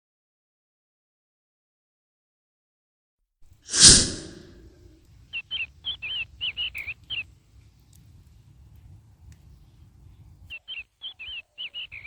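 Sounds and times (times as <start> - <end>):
sudden loud burst of noise: 3.7 - 4.7
small bird chirping: 5.3 - 7.3, 10.5 - 12.0.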